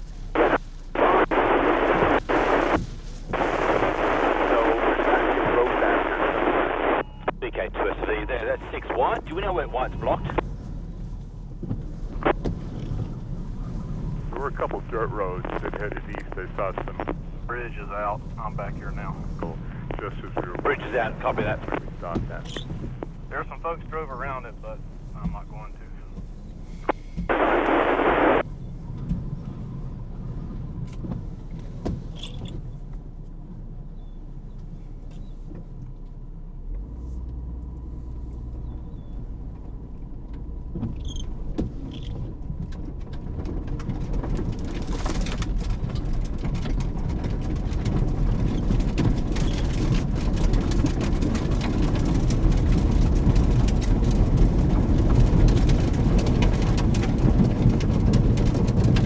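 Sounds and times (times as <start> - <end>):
rain striking vehicle: 0.0 - 6.6, 38.6 - 59.0
car rumble inside cabin: 0.0 - 59.0
two-way radio static: 0.3 - 10.5, 12.1 - 12.4, 14.2 - 28.4.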